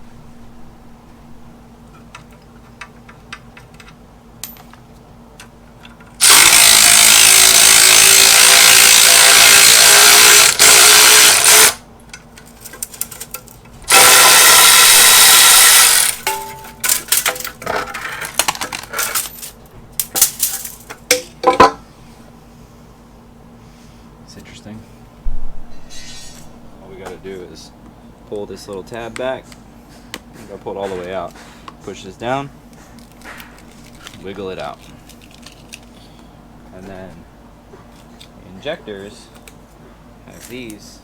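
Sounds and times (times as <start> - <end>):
power tool running on bolts: 6.2 - 11.8, 13.9 - 16.3
metallic clinks of parts: 12.4 - 13.8, 16.0 - 21.8.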